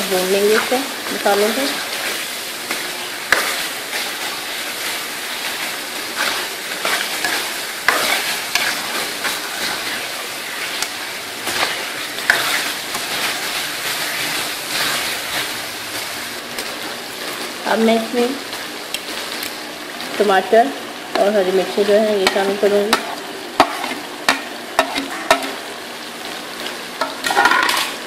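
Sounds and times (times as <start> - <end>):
meat sizzling in oil: 0.0 - 28.0
metal spoon stirring and scraping: 5.5 - 15.5, 22.2 - 25.6, 27.0 - 28.0.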